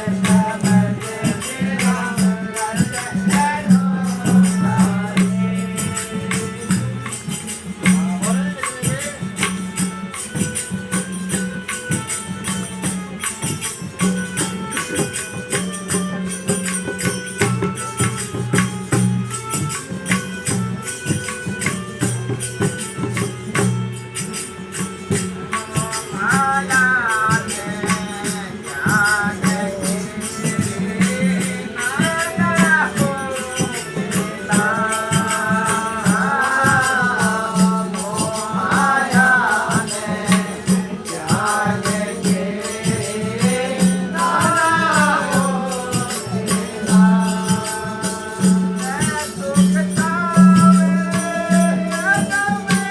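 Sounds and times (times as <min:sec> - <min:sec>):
jingling hand percussion: 0:00.0 - 0:52.9.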